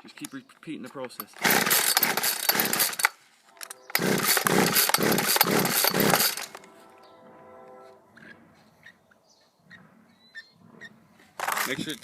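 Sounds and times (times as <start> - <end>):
two-stroke chainsaw sputtering: 1.2 - 3.2, 3.9 - 6.6.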